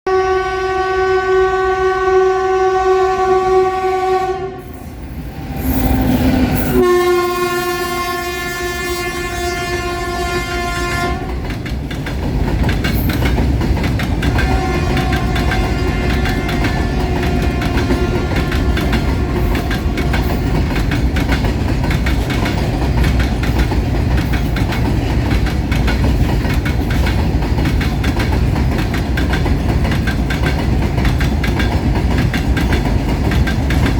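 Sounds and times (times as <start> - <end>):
locomotive horn blasts: 0.0 - 11.5, 14.3 - 20.6
freight train rumbling past: 0.1 - 33.9
wagons clacking on rails: 9.6 - 33.9.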